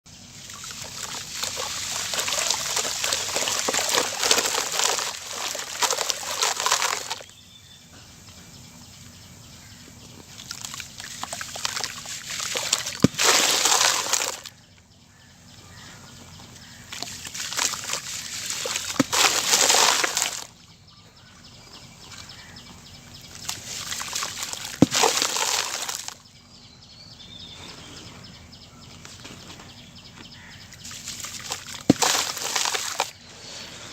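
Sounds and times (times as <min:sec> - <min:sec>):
cement chunks smashing and crumbling: 0:01.2 - 0:07.2, 0:12.4 - 0:14.4, 0:18.6 - 0:20.5, 0:24.0 - 0:26.2, 0:31.4 - 0:33.1.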